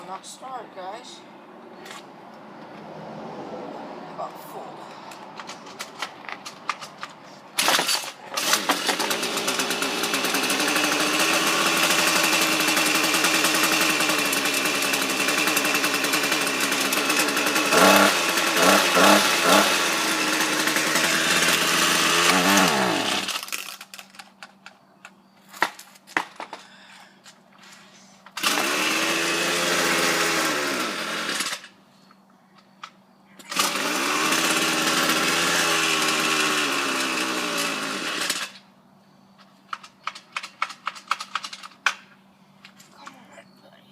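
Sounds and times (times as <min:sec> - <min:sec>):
string trimmer engine running: 0:07.6 - 0:24.0, 0:28.3 - 0:31.8, 0:33.5 - 0:38.6.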